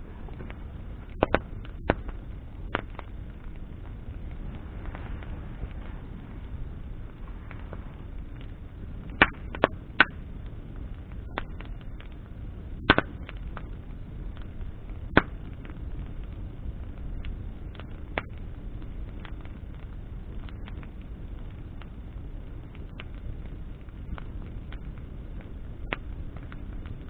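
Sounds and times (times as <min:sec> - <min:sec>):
bonfire crackling and popping: 0:00.0 - 0:27.0
low rush of flames: 0:00.0 - 0:27.0.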